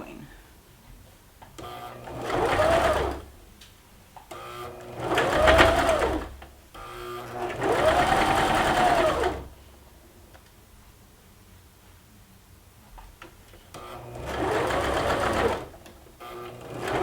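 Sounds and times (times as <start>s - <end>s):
sewing machine motor stitching: 1.6s - 3.3s, 4.3s - 9.5s, 13.8s - 17.0s.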